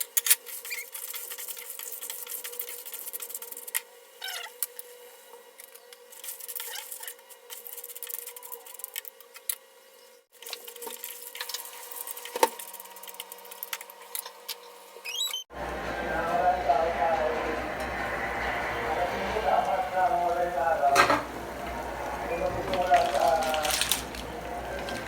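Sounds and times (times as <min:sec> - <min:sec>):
faint steady hum: 0:15.5 - 0:25.0.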